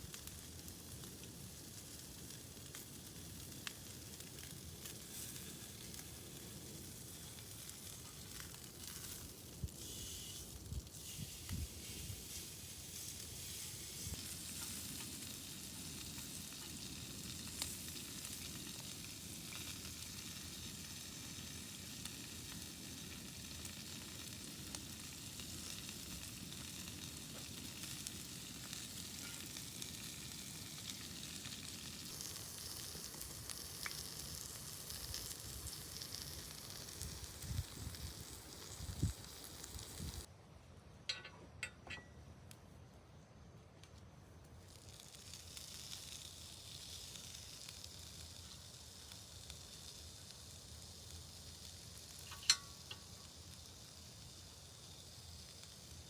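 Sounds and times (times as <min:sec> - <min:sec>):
faint sizzling: 0:00.0 - 0:40.3, 0:44.3 - 0:56.0.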